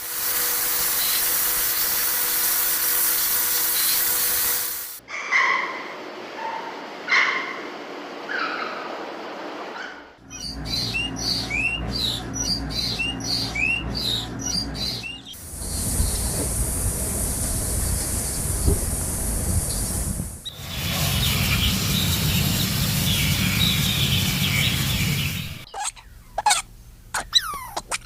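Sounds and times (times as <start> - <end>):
steady hiss: 0.0 - 5.0, 15.4 - 25.7
bird chirping: 10.2 - 15.4, 19.7 - 28.0
low hum: 10.2 - 27.0
animal calls: 25.7 - 28.0.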